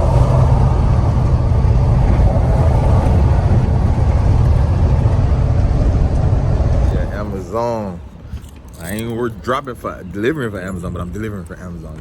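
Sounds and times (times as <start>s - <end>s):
truck engine low rumble: 0.0s - 8.3s.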